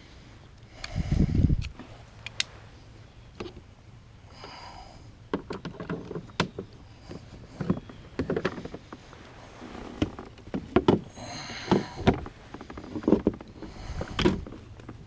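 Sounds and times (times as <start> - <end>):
low outdoor background: 0.0 - 15.0
knocks and clatter on a kayak: 5.2 - 15.0.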